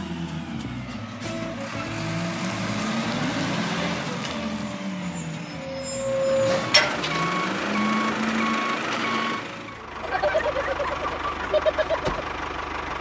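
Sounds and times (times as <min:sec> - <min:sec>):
engine running: 0:01.5 - 0:05.1
truck reversing alarm beeping: 0:05.8 - 0:09.8.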